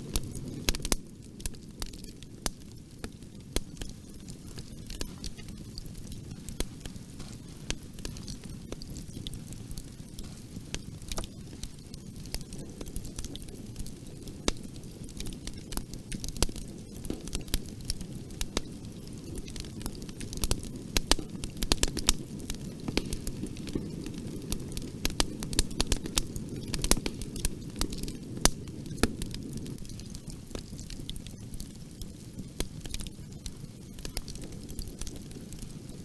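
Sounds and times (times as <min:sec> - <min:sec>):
fire flames rumbling: 0:00.0 - 0:36.0
wood crackling and popping: 0:00.0 - 0:36.0.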